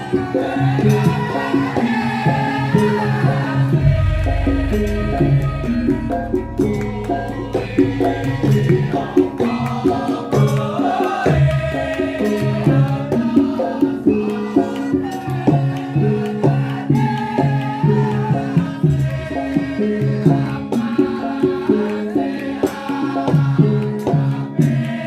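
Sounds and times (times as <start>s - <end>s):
hand drum: 0.0s - 25.0s
struck metal notes: 2.7s - 11.9s.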